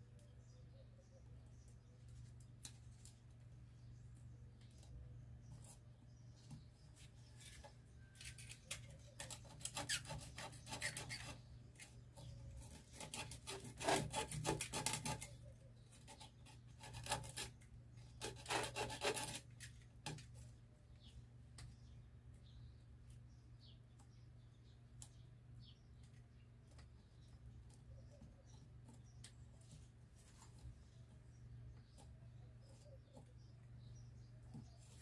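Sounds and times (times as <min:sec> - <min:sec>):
sandpaper scratching on wood: 0:18.2 - 0:19.4.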